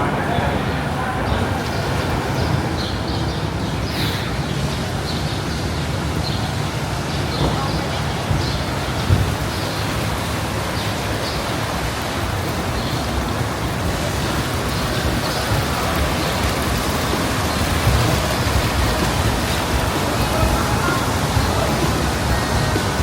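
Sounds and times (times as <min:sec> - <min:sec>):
rushing noise with low rumble: 0:00.0 - 0:23.0.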